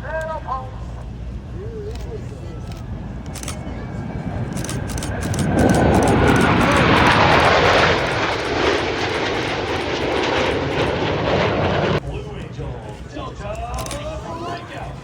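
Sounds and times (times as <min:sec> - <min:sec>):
aircraft flying past: 0:01.4 - 0:12.2.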